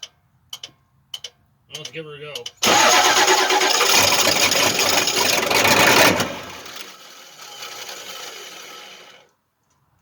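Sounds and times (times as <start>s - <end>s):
diesel engine cranking on starter: 2.6s - 9.3s.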